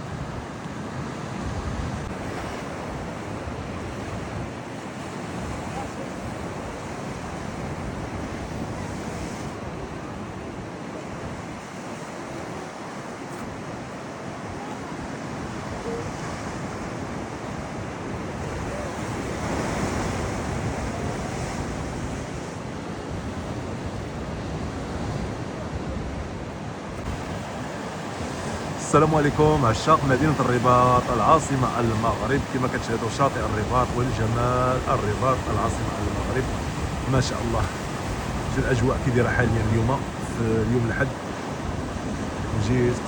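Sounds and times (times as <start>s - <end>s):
rough sea surf breaking: 0.0s - 43.0s
wind buffeting microphone: 13.2s - 43.0s.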